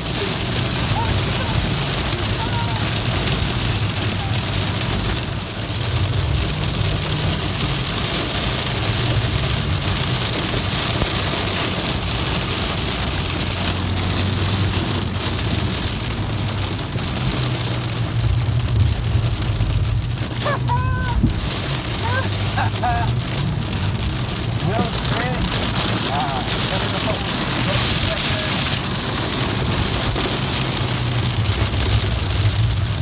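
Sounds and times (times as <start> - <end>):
car engine running: 0.0 - 33.0
rain hiss: 0.0 - 33.0.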